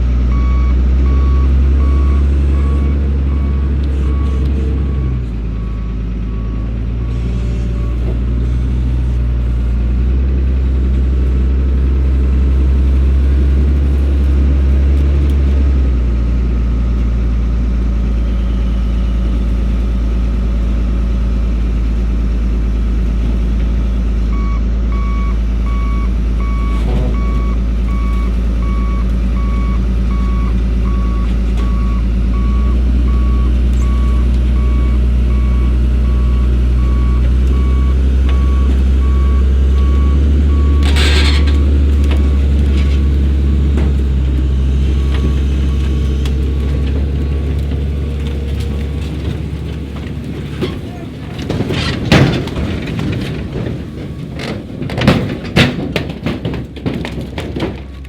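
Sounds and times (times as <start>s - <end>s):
heavy equipment engine running: 0.0s - 58.0s
backup alarm beeping: 0.3s - 8.1s, 24.3s - 43.2s.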